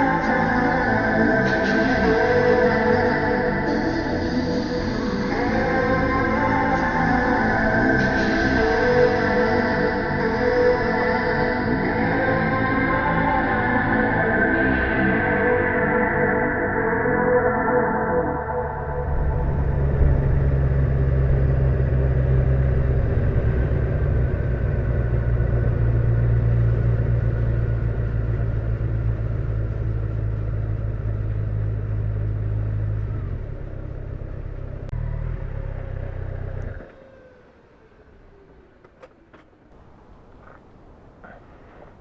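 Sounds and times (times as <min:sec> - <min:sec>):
motorcycle engine running: 0:18.5 - 0:39.0.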